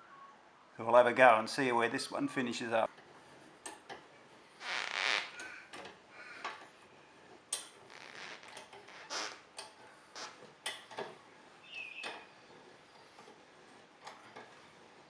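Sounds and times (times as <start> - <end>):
lift creaking: 3.0 - 6.8, 7.5 - 15.0
rasping noise: 4.6 - 5.6, 7.8 - 9.5.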